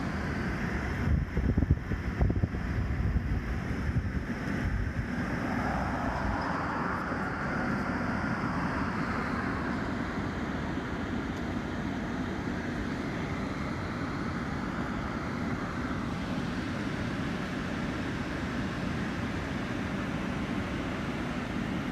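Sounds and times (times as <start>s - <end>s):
wind noise: 0.0s - 8.9s
car interior road noise: 0.0s - 21.9s.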